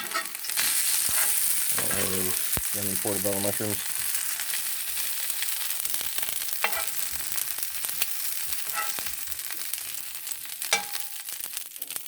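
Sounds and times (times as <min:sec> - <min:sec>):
mushrooms sizzling in frying pan: 0:00.0 - 0:12.0
utensil clinking against pan: 0:06.7 - 0:07.0, 0:10.7 - 0:11.2.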